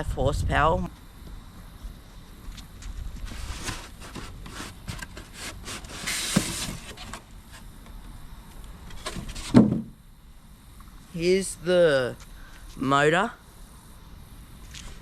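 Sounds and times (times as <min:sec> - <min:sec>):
cardboard packaging being opened: 0:03.2 - 0:07.2.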